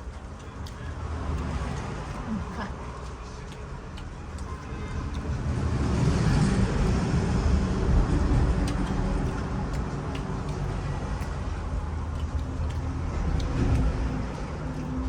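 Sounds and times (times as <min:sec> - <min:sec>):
road vehicle rumble: 0:00.0 - 0:15.0.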